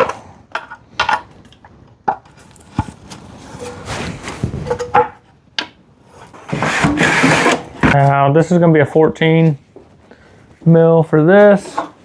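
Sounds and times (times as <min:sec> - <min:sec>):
metal rubbing and scraping: 0:02.7 - 0:05.0.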